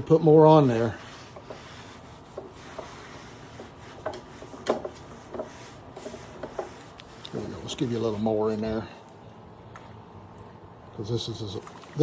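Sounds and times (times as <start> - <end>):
rag scrubbing wood: 0.4 - 8.8.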